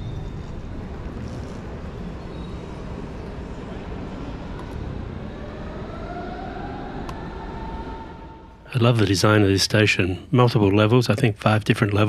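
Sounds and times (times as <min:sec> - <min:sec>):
train traction motor whine: 0:00.0 - 0:08.7
railway station background noise: 0:00.0 - 0:09.2.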